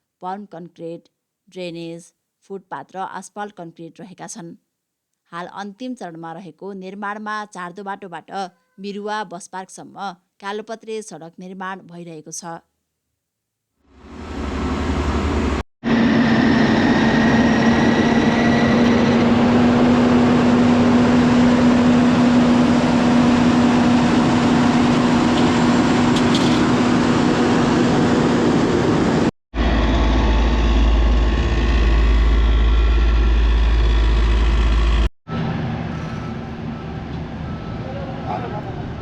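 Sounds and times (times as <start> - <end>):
heavy machinery engines running: 13.9 - 39.0.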